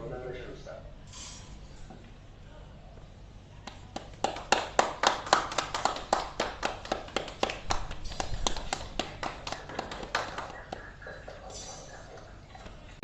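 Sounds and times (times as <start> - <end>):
group clapping: 3.6 - 12.4.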